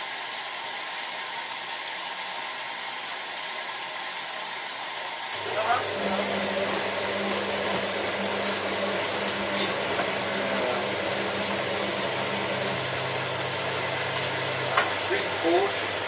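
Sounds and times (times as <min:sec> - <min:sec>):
washing machine motor hum: 0:05.3 - 0:16.0.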